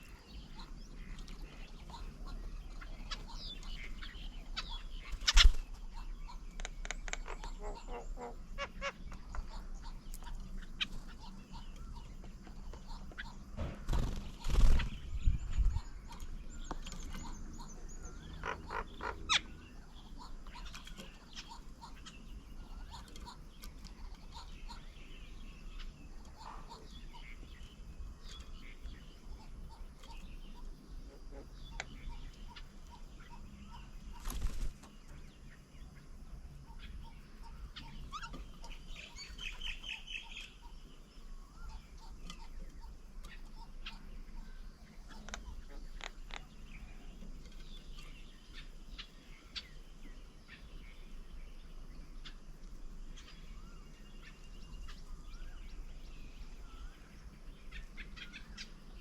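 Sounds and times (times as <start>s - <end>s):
bird trill: 0.0s - 59.0s
wild birds chirping: 0.0s - 59.0s
loud rustle or thump: 13.6s - 14.1s.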